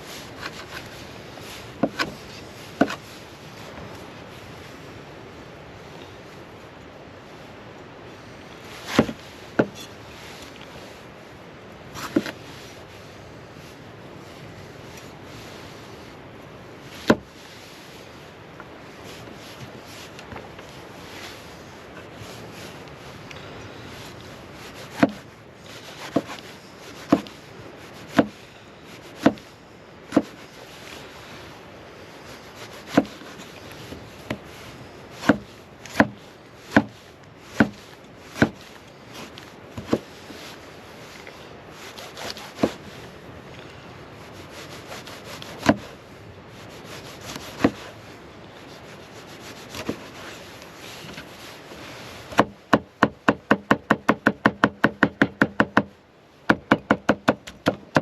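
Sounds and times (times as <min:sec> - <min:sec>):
sharp wooden knocks: 0:24.9 - 0:25.2, 0:27.1 - 0:27.3, 0:28.1 - 0:28.4, 0:29.2 - 0:29.4, 0:30.1 - 0:30.3, 0:32.9 - 0:33.2, 0:35.2 - 0:36.9, 0:37.6 - 0:37.8, 0:52.3 - 0:55.9, 0:56.5 - 0:58.0.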